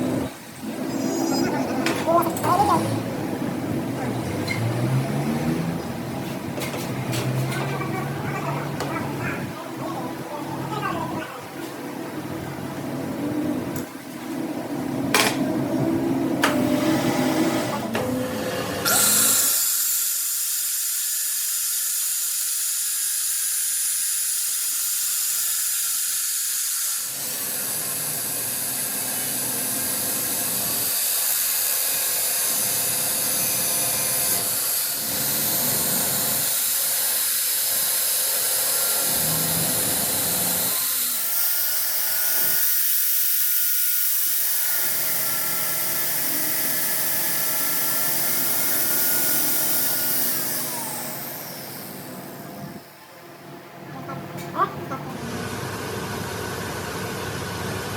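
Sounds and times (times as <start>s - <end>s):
power tool high-pitched whir: 0.0s - 3.2s, 16.4s - 53.0s.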